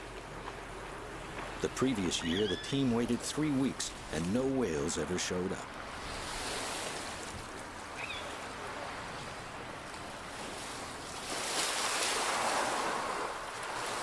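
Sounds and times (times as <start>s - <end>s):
waves washing onto pebbles: 10.2s - 14.0s.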